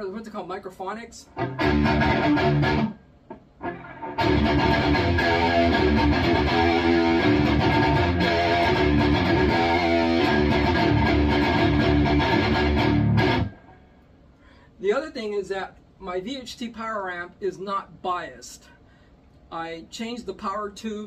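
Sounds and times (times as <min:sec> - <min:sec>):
distorted electric guitar riff: 0:01.3 - 0:13.9.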